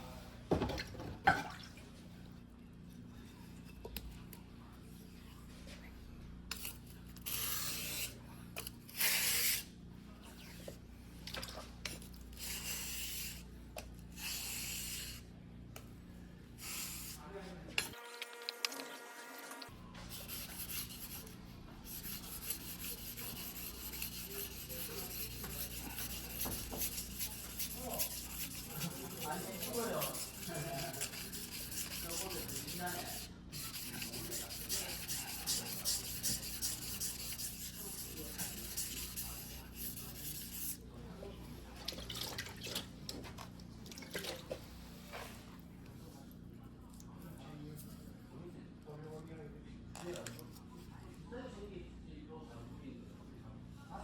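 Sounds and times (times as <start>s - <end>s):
knife scraping on whetstone: 21.9s - 40.8s.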